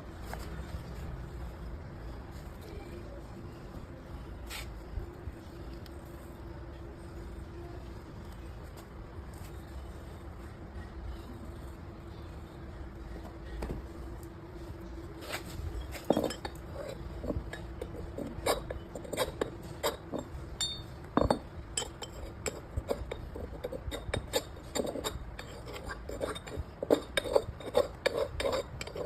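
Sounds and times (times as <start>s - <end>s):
faint steady hum: 0.0s - 29.0s
hard objects knocking on metal: 17.2s - 25.2s.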